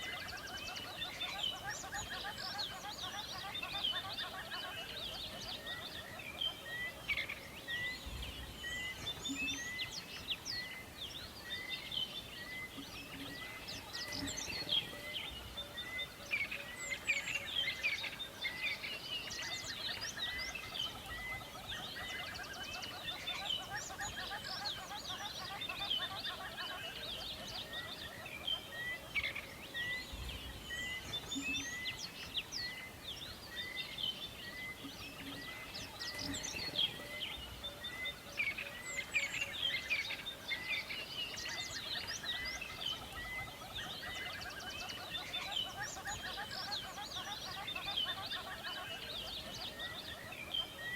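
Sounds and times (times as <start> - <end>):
songbirds chirping and trilling: 0.0 - 50.9.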